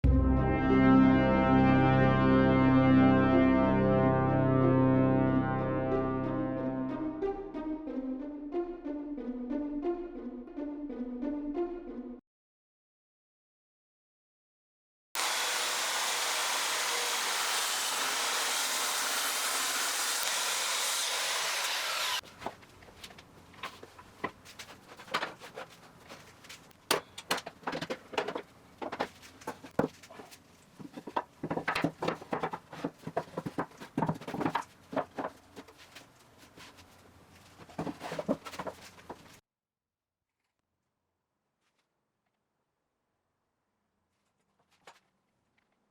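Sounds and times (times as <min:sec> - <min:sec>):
power tool running: 0:15.2 - 0:22.2
knocks of wood and tools: 0:22.2 - 0:36.0, 0:37.6 - 0:39.4.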